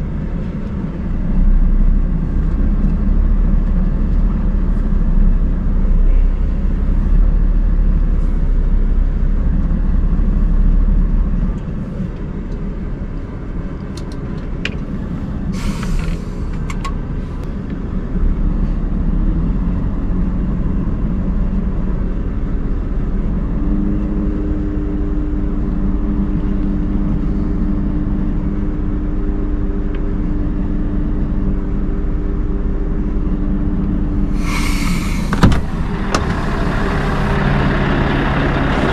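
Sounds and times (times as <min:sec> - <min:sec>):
truck diesel engine rumbling: 0:00.0 - 0:38.9
short hiss: 0:15.5 - 0:16.5, 0:34.3 - 0:35.6
steady hum: 0:24.5 - 0:38.9.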